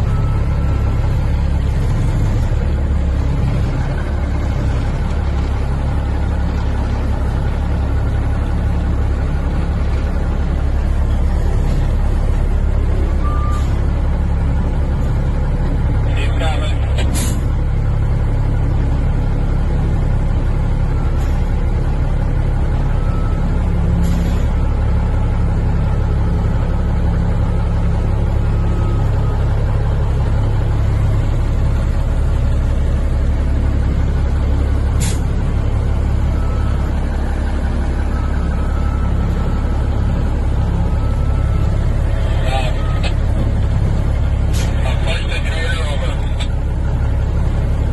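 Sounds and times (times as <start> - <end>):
heavy vehicle engine rumbling: 0.0 - 47.9.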